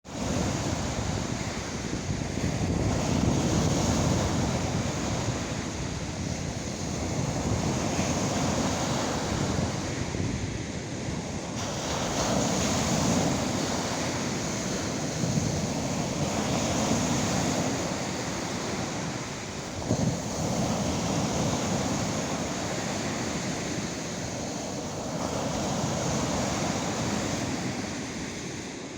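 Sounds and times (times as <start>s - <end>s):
lake waves breaking on shore: 0.0s - 28.9s
wind on microphone: 0.0s - 28.9s.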